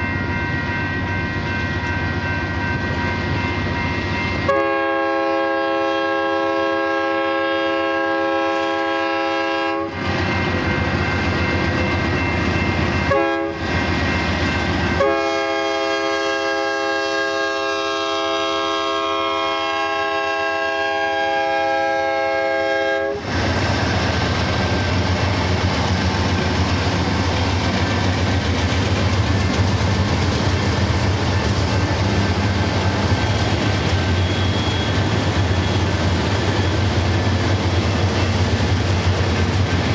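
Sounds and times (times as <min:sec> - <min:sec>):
rail noise: 0:00.0 - 0:39.9
locomotive horn blasts: 0:04.4 - 0:10.0, 0:13.0 - 0:13.6, 0:14.9 - 0:23.3.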